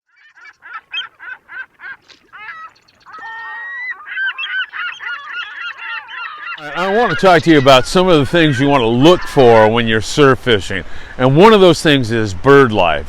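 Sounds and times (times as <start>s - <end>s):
flock of birds honking: 0.1s - 9.8s.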